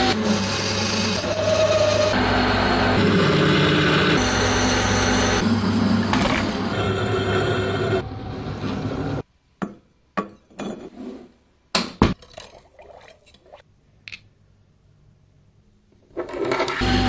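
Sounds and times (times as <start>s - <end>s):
power tool running: 0.0s - 8.0s, 16.8s - 17.0s.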